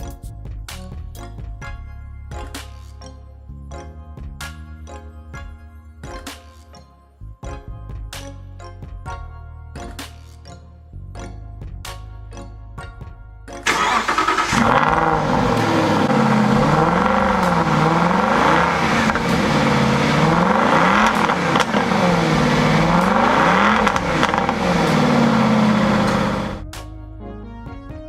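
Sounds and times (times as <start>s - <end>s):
car engine revving: 13.7s - 26.6s.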